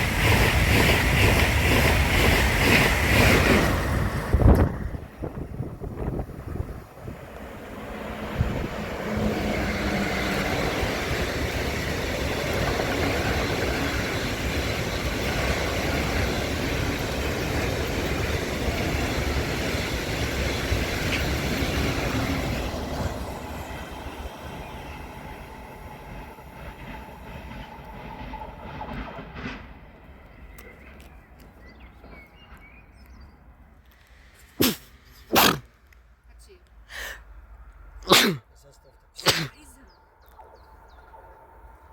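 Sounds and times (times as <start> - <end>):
train passing: 0.0 - 35.2.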